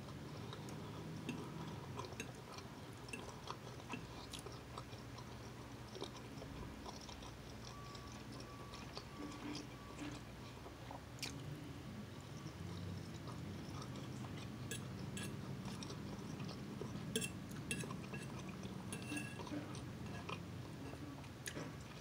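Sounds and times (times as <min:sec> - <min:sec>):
person chewing food: 0:00.0 - 0:22.0
steady low hum: 0:00.0 - 0:22.0
metal fork clicking on plate: 0:14.7 - 0:15.4, 0:17.2 - 0:18.3, 0:18.9 - 0:19.5.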